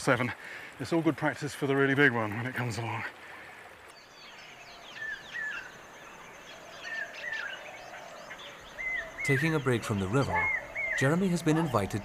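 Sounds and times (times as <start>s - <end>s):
faint high bird chirps: 3.9s - 12.0s.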